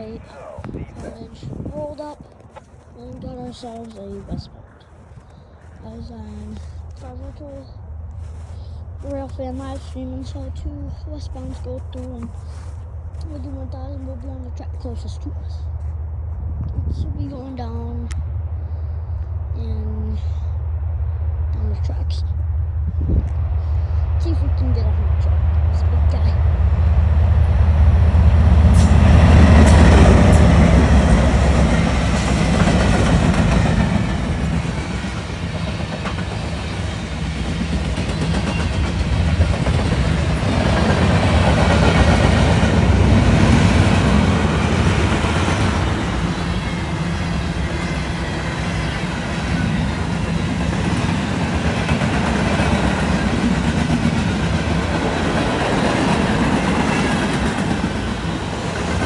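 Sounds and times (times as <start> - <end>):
diesel locomotive rumble: 0.0 - 59.0
train wheels clacking on rails: 27.4 - 59.0.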